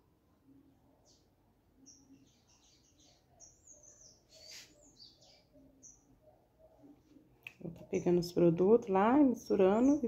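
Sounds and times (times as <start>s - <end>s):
high bird chirps: 1.0s - 6.9s.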